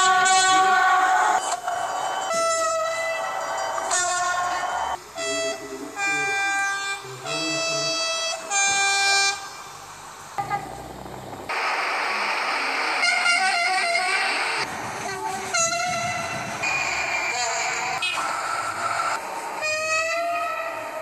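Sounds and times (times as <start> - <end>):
loud rushing noise: 0.0 - 21.0
train horn short blasts: 2.3 - 9.5, 15.5 - 16.4.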